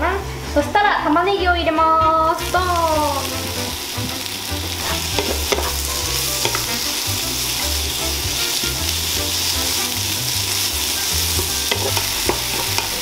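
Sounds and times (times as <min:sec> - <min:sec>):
onions sizzling in oil: 0:00.0 - 0:13.0
spatula clicking against pan: 0:11.3 - 0:13.0.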